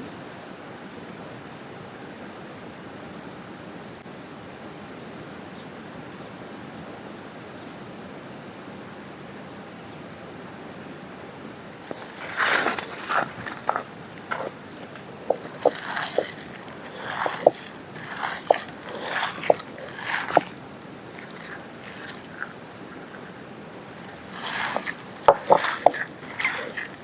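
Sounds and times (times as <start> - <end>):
soft rustling: 11.8 - 27.0.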